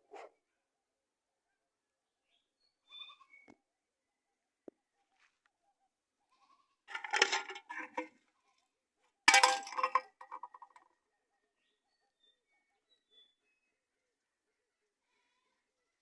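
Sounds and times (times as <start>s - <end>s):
animal bleating: 6.3s - 6.8s.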